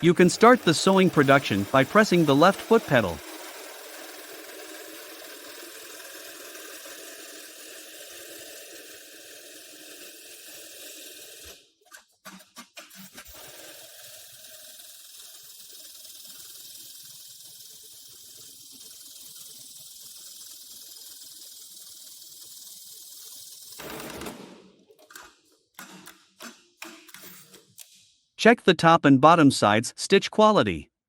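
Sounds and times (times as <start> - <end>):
sewing machine running: 0.0 - 11.7, 12.3 - 26.1
sewing machine clicks: 0.0 - 17.4, 23.2 - 28.0.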